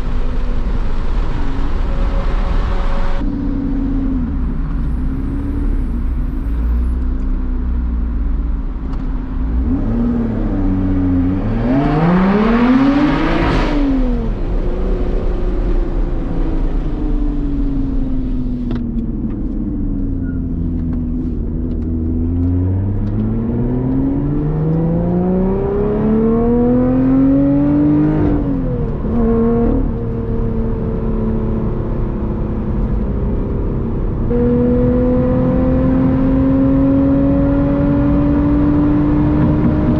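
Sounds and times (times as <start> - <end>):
car engine accelerating hard: 9.4 - 20.1, 20.7 - 39.9.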